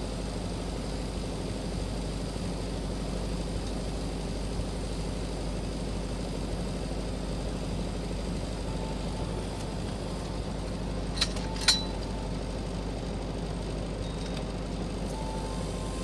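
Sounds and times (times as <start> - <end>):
welding equipment humming: 0.0 - 16.0
sharp metallic clinks: 11.0 - 12.4.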